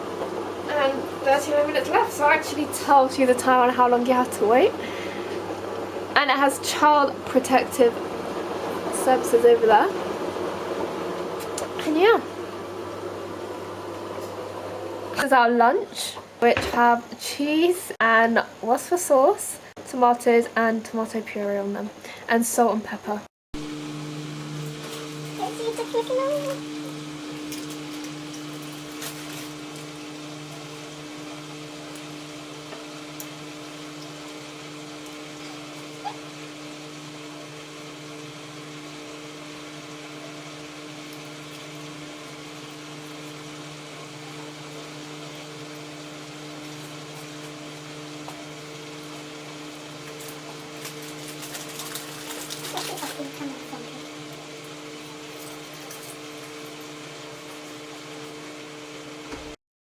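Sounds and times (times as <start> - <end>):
washing machine motor hum: 0.0 - 17.5, 23.6 - 59.6
washing drum turning wet load: 23.6 - 59.6.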